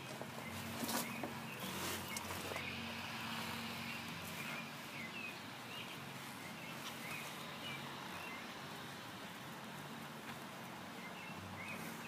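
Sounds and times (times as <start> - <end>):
bird chirping: 0.0 - 8.6, 10.9 - 12.0.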